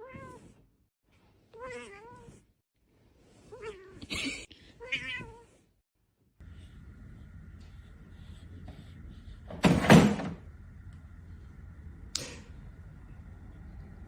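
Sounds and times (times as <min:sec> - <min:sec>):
steady low hum: 0:06.4 - 0:14.0.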